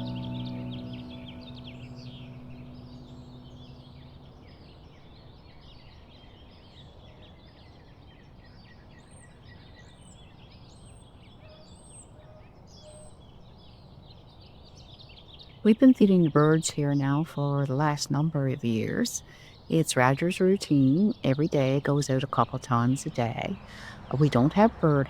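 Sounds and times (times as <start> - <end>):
bird high arched notes: 0.0 - 4.5.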